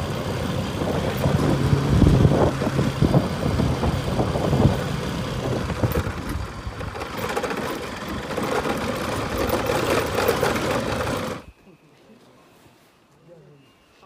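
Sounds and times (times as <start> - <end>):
road and rushing air noise: 0.0 - 11.4
motorcycle engine running: 0.0 - 11.5.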